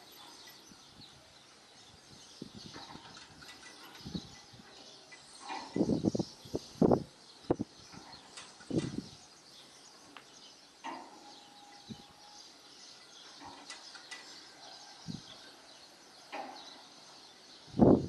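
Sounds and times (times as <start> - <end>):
birds chirping: 0.0 - 18.0
wind buffeting microphone: 0.6 - 9.3, 15.0 - 15.5, 17.6 - 18.0.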